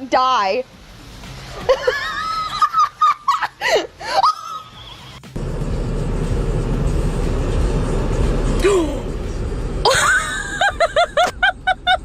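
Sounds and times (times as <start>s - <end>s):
loud steady rumbling: 5.3s - 12.0s
person laughing: 9.8s - 12.0s.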